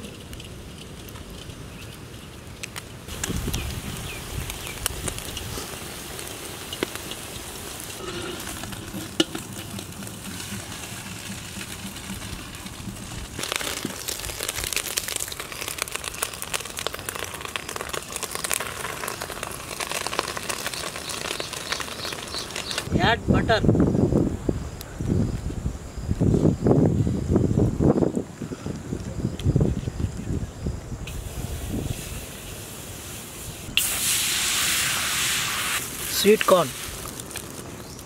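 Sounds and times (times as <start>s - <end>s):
eggs sizzling in a wok: 3.1s - 22.9s, 31.1s - 38.0s
metal spatula scraping a pan: 8.0s - 11.8s.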